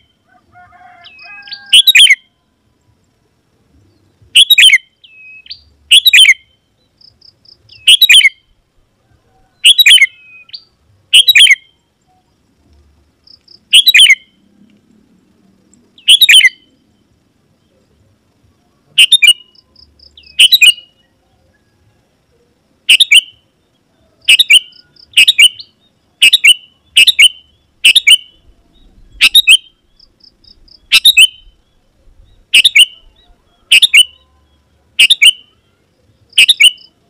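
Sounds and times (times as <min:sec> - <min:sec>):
bird harsh calls: 0:01.0 - 0:02.3, 0:04.4 - 0:06.6, 0:07.6 - 0:08.5, 0:09.5 - 0:11.8, 0:13.5 - 0:14.4, 0:16.0 - 0:16.7, 0:19.0 - 0:21.1, 0:22.9 - 0:23.5, 0:24.2 - 0:35.6, 0:36.4 - 0:36.9.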